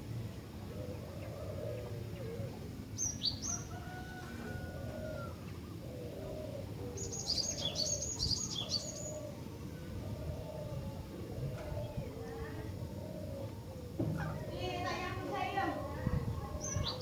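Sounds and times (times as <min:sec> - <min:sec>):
bird chirping: 0:03.0 - 0:03.7, 0:07.0 - 0:09.2.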